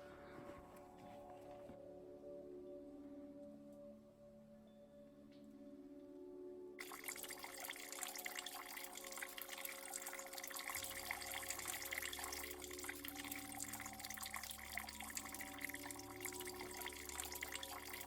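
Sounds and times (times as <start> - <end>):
ambient music drone: 0.0 - 18.0
water running and splashing: 6.8 - 13.0.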